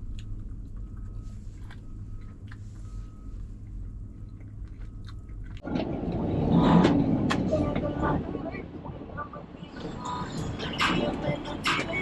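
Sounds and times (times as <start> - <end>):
person chewing food: 0.0 - 5.7
steady low hum: 0.0 - 12.0.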